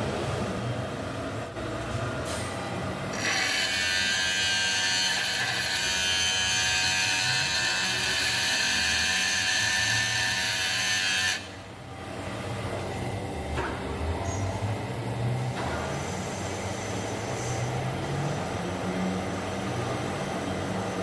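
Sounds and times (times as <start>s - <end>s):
grinder grinding steel: 3.1s - 11.5s
grinder motor hum: 3.1s - 11.6s.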